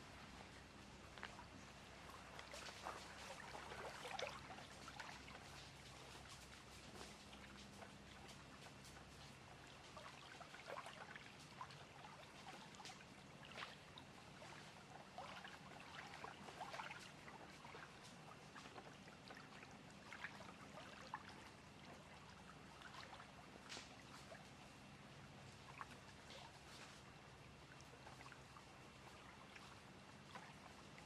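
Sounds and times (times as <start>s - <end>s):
small splashes and trickles: 0.0s - 31.0s
water lapping at shore: 0.0s - 31.0s.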